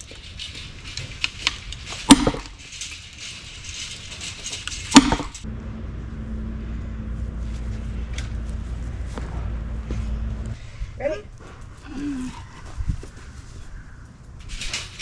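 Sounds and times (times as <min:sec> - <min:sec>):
low hum: 0:00.0 - 0:15.0
sledgehammer striking wedge: 0:02.0 - 0:02.6, 0:04.9 - 0:05.4.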